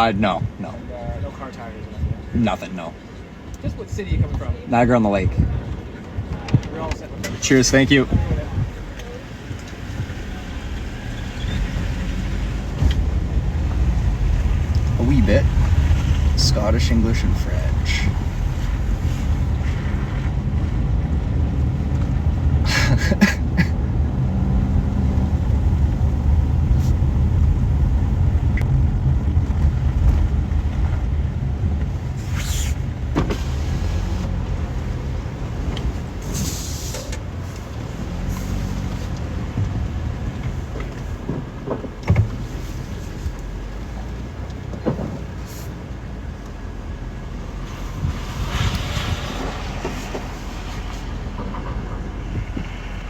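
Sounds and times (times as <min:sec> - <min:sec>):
car engine and tyres rumbling: 0:00.0 - 0:53.0
thump: 0:44.8 - 0:45.3.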